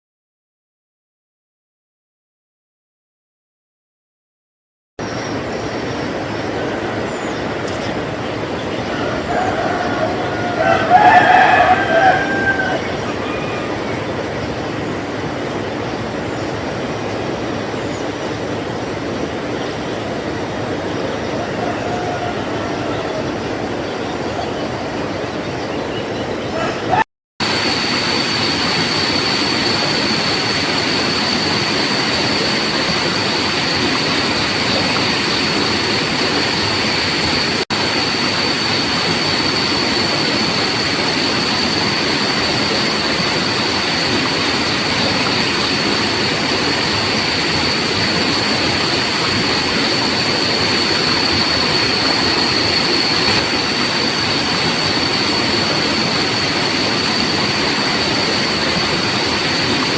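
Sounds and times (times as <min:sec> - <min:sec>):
flowing water rushing: 0:05.0 - 0:59.9
high-pitched insect drone: 0:27.4 - 0:59.9.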